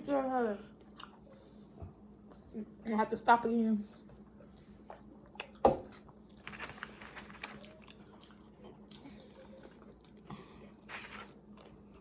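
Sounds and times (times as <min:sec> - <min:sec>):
person chewing crispy food: 0:04.9 - 0:12.0.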